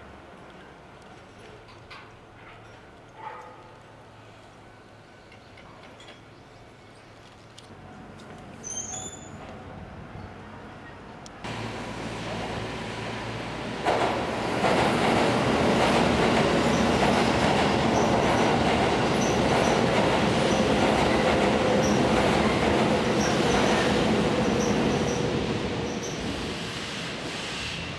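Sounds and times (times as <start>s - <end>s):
train passing on bridge: 9.4s - 27.9s.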